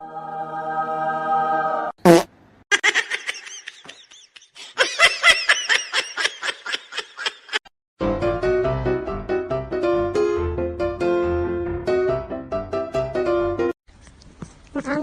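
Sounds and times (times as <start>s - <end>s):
high-pitched giggling laughter: 2.7s - 7.6s.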